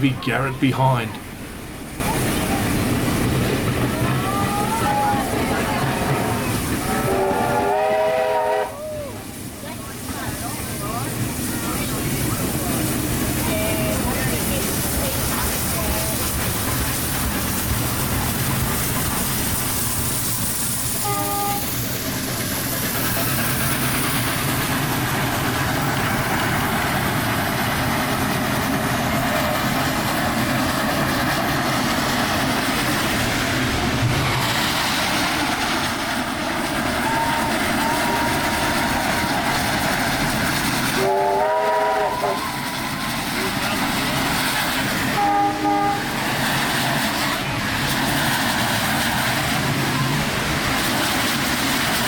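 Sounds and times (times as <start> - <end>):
train rumble and rail clatter: 0.0 - 52.0
steam train whistle: 6.2 - 9.2, 21.0 - 21.9, 36.9 - 39.6, 40.9 - 43.0, 45.1 - 46.2.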